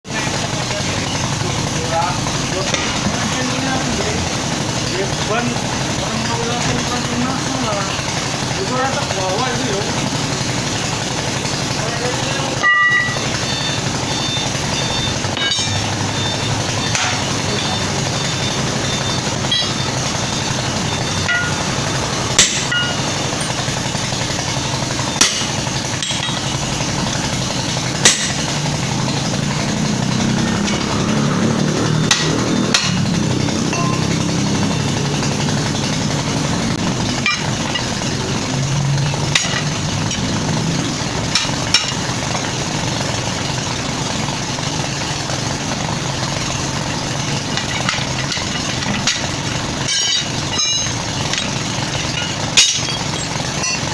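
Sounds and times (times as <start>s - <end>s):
engine running: 0.0s - 53.9s
hammer blows: 12.6s - 35.5s.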